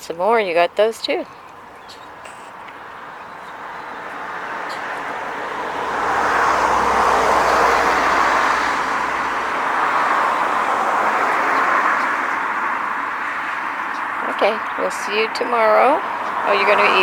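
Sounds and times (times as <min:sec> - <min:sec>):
car driving past: 0:01.6 - 0:14.9.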